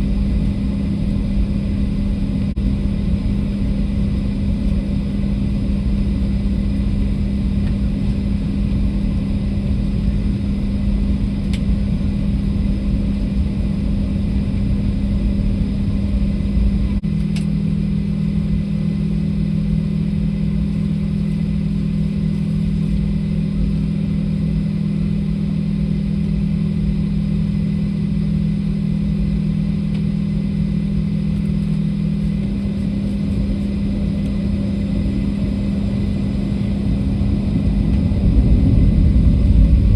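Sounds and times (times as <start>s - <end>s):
airliner cabin drone: 0.0s - 39.9s.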